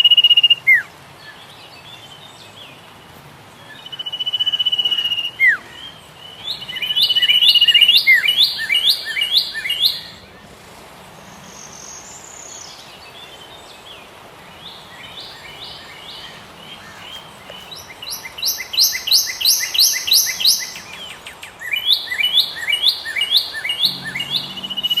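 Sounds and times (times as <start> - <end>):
birds chirping: 0.3 - 25.0
high bird trill: 14.7 - 25.0.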